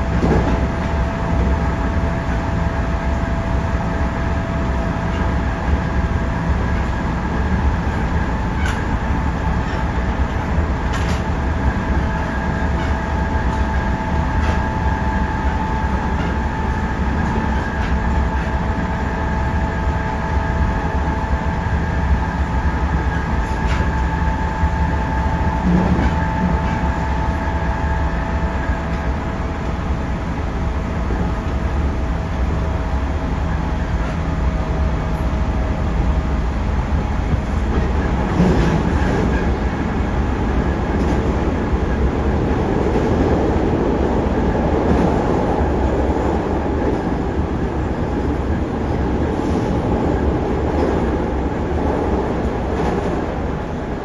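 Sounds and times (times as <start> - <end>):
train interior rumble and whine: 0.0 - 54.0
faint rail-joint clicks: 6.7 - 18.9, 23.0 - 24.7, 25.5 - 27.4, 33.7 - 35.6, 37.0 - 43.5.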